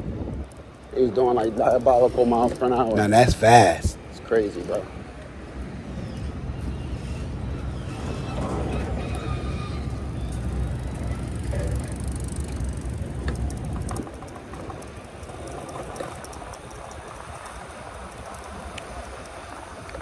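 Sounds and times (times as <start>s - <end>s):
road noise: 0.0s - 20.0s
wind buffeting microphone: 0.0s - 20.0s
light rattling clicks: 11.5s - 20.0s.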